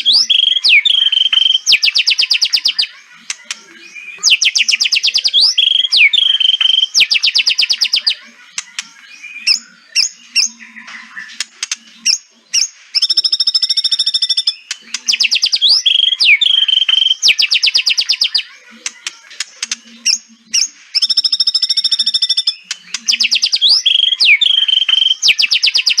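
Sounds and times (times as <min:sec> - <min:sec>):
bird whistled notes: 0:00.0 - 0:02.9, 0:03.9 - 0:08.1, 0:12.1 - 0:18.5, 0:20.1 - 0:26.0.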